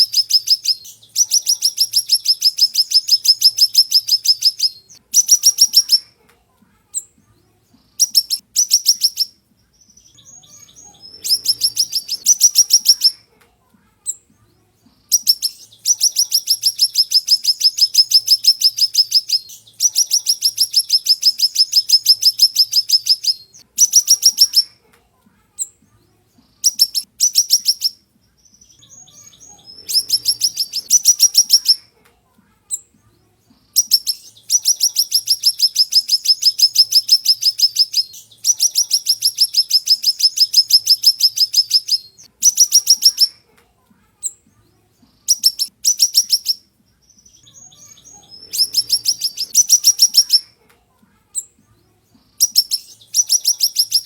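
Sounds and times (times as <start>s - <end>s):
songbird singing rapid trills: 0.0s - 6.1s, 8.0s - 13.2s, 14.0s - 24.7s, 25.6s - 31.8s, 32.7s - 43.4s, 45.2s - 50.5s, 52.4s - 54.0s.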